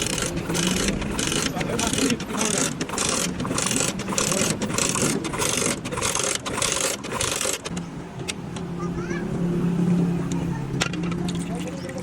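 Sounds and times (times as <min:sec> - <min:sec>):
rasping scraping strokes: 0:00.0 - 0:07.7.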